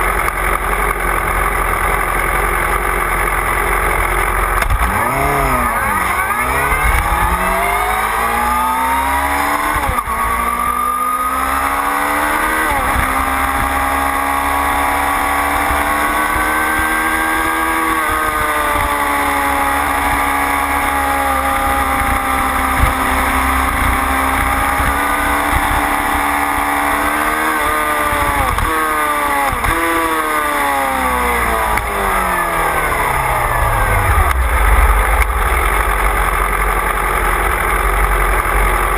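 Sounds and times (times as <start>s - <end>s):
motorcycle engine revving: 0.0s - 38.9s
low rumble: 4.6s - 9.3s, 31.5s - 38.7s
throttle blips: 5.0s - 10.2s, 31.7s - 36.5s.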